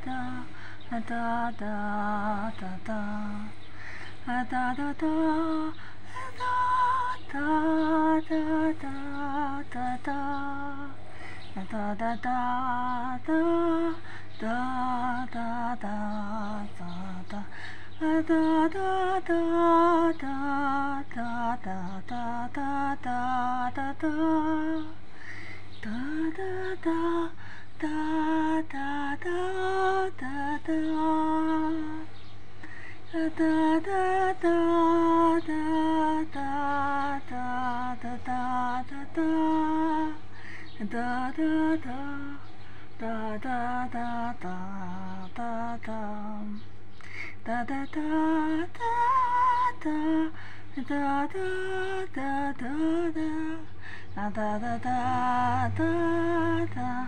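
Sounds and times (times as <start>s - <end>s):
woman singing wordless melody: 0.0s - 57.0s.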